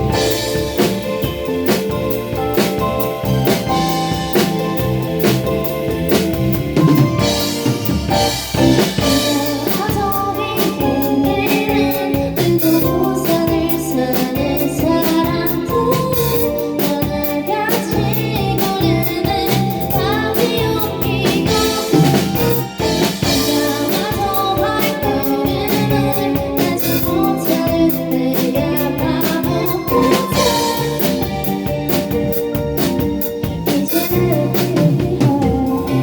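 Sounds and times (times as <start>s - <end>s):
drum kit beat: 0.0s - 36.0s
keyboard and guitar chords: 0.0s - 36.0s
person singing: 8.6s - 32.2s, 33.6s - 36.0s.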